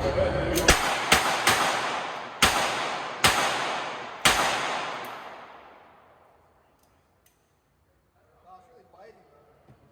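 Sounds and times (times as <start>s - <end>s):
revolver shots echoing: 0.6s - 6.2s.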